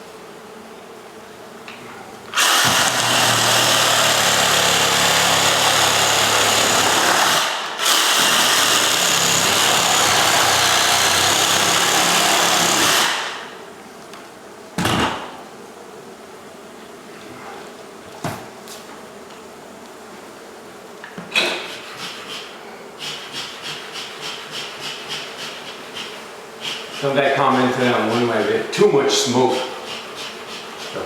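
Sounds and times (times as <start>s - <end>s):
electric power tool running: 2.3s - 13.6s.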